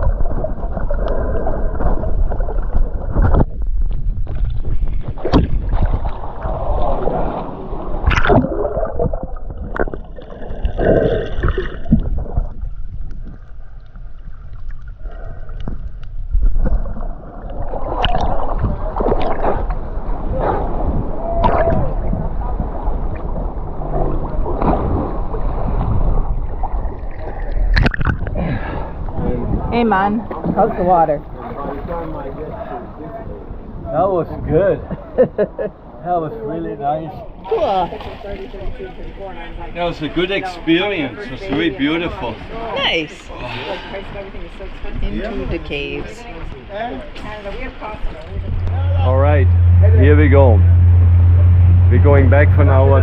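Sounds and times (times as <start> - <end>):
knocks and splashes: 0.0 - 13.7, 15.6 - 28.4, 37.4 - 39.0
muffled gurgling sloshing water: 0.0 - 35.1, 37.1 - 53.0.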